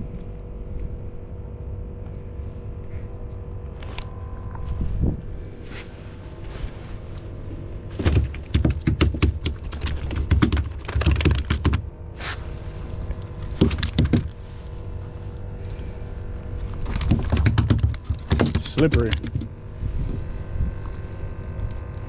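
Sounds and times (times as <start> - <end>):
fish flopping and slapping: 7.9 - 11.8, 13.1 - 14.4, 16.6 - 19.5.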